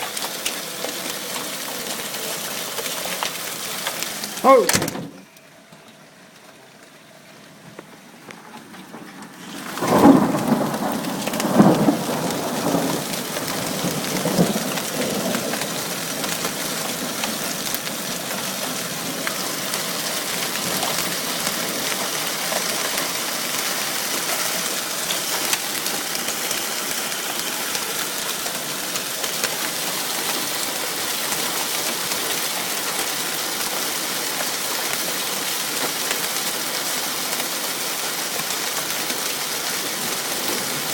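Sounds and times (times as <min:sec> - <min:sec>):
hail and rain pelting down: 0:00.0 - 0:05.0, 0:06.1 - 0:40.9
low thunder rumbles: 0:09.4 - 0:23.9.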